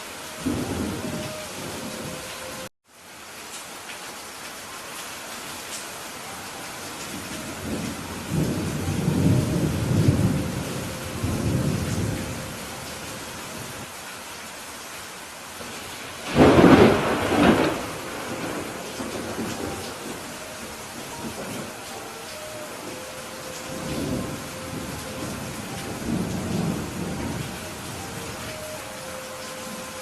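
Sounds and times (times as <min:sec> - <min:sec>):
steady rain: 0:00.0 - 0:30.0
thunder rumbling: 0:00.4 - 0:02.7, 0:07.1 - 0:13.8, 0:15.6 - 0:29.1
sharp thunderclap: 0:16.2 - 0:20.2.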